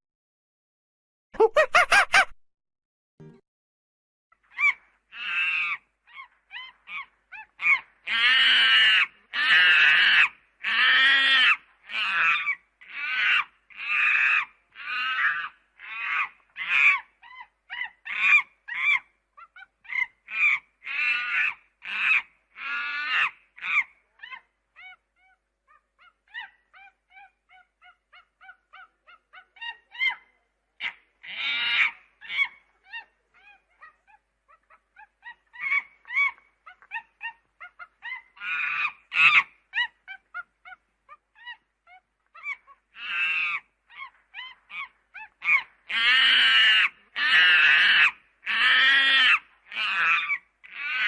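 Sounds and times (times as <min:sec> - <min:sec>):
monkeys high chirps: 0:01.4 - 0:02.3, 0:11.3 - 0:51.0.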